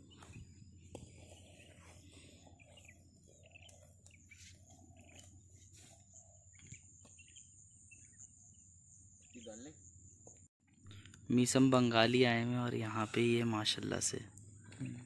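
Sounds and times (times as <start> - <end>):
small bird chirps: 0.0 - 10.5.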